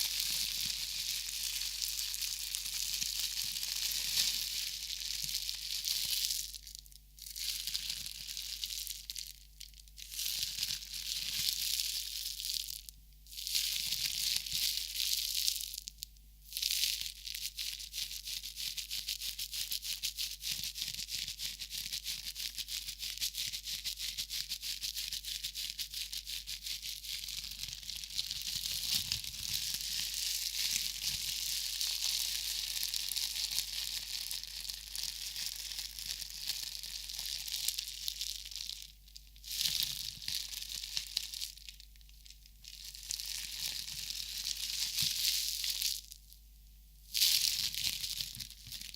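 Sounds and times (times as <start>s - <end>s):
wrapping crinkling and rustling: 0.0s - 46.3s, 47.1s - 48.9s.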